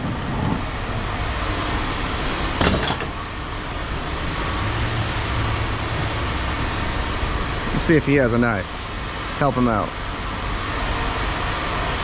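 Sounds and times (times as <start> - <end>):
engine running: 0.0 - 12.0
metal clank: 2.6 - 3.2.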